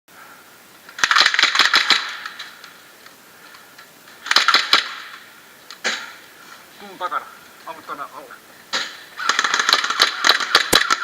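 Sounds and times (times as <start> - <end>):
airsoft gun firing bursts: 1.0 - 2.6, 4.2 - 6.2, 8.7 - 11.0.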